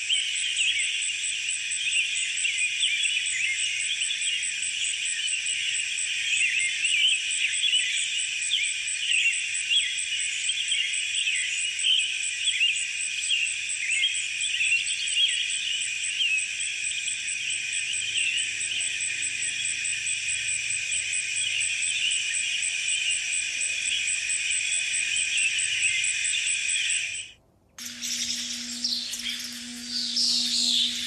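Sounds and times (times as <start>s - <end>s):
insects buzzing: 0.1s - 31.0s
small birds chirping: 8.6s - 31.0s.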